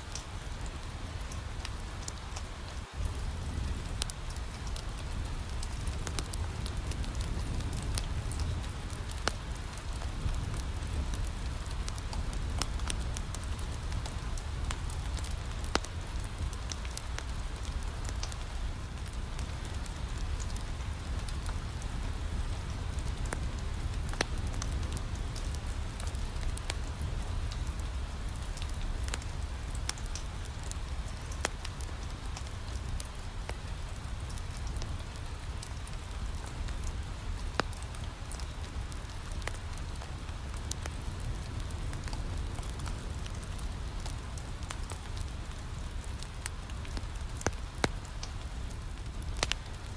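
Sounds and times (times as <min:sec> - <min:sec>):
rain against a window: 0:00.0 - 0:49.9
wood fire crackling: 0:00.0 - 0:49.9.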